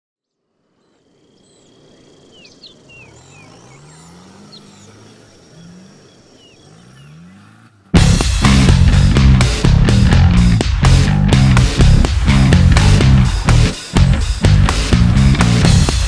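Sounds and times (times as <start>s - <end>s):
birds chirping: 0.2s - 10.5s
high insect whine: 0.5s - 7.4s
off-road vehicle engine revving: 1.8s - 16.0s
loud rock music: 8.0s - 16.0s.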